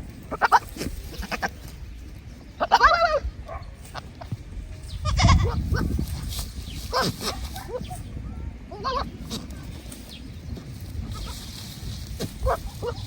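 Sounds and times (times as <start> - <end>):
rustling: 0.0 - 2.4, 3.7 - 8.0, 9.1 - 13.0
faint animal sounds: 11.0 - 13.0.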